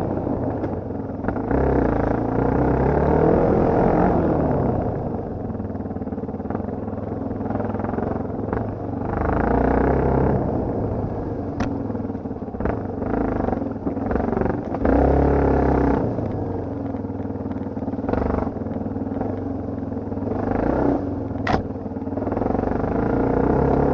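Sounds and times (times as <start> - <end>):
dirt bike engine revving: 12.6 - 16.2, 20.3 - 21.6, 22.3 - 23.9
sharp click: 21.4 - 21.7.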